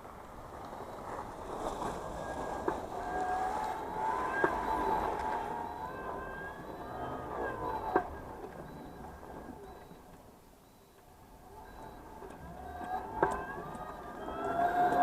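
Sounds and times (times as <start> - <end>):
scooter motor whining: 0.7 - 10.2, 11.0 - 15.0
sharp clicks: 11.7 - 15.0.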